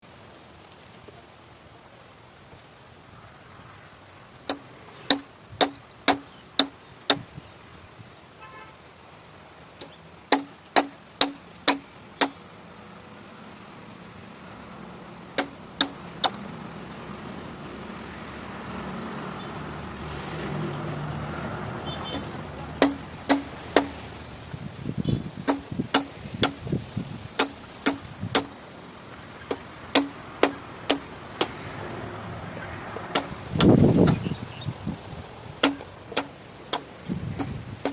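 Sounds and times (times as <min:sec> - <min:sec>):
sharp tool strikes: 0:04.5 - 0:07.2, 0:10.3 - 0:12.4, 0:22.8 - 0:24.0, 0:25.5 - 0:26.6, 0:27.4 - 0:28.5, 0:29.5 - 0:31.6, 0:33.1 - 0:34.2, 0:35.6 - 0:36.8, 0:37.4 - 0:37.9.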